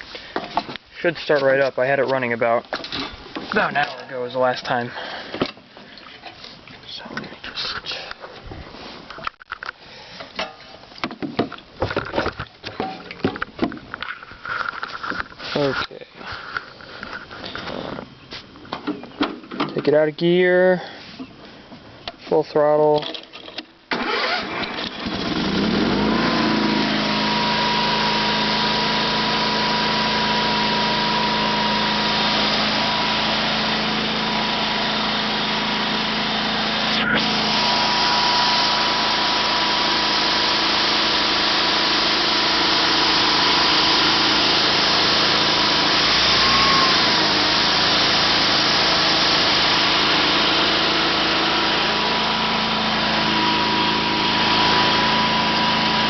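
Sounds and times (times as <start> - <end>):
engine starting and revving: 23.9 - 56.0.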